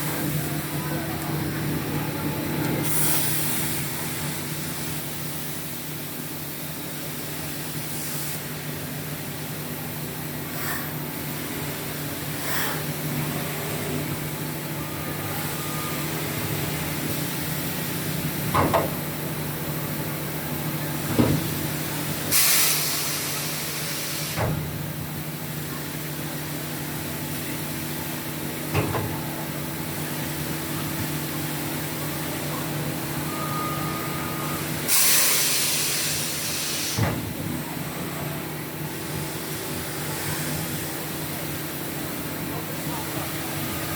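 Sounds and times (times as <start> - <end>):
compressed air hisses: 2.8 - 4.1, 22.3 - 24.4, 34.9 - 37.1.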